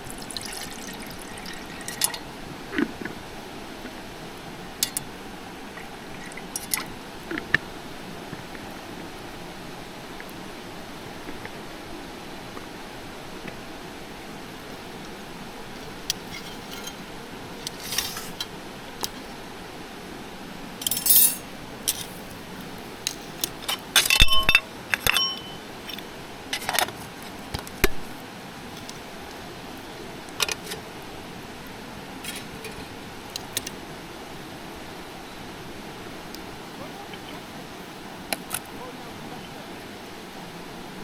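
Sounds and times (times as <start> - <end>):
background hiss: 0.0 - 41.0
metal and glass items clinking: 15.8 - 17.0, 17.6 - 18.5, 20.8 - 22.4, 23.1 - 26.0.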